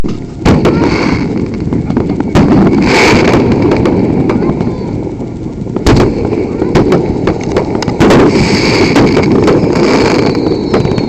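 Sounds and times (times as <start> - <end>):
firework pops and crackles: 0.0 - 11.0
loud firework bangs: 0.0 - 11.0.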